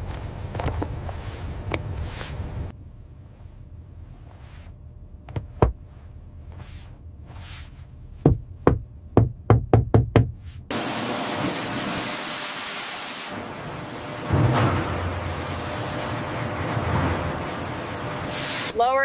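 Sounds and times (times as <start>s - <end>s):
sharp knocks: 8.2s - 10.4s
loud steady hiss: 10.7s - 16.7s, 17.3s - 18.9s.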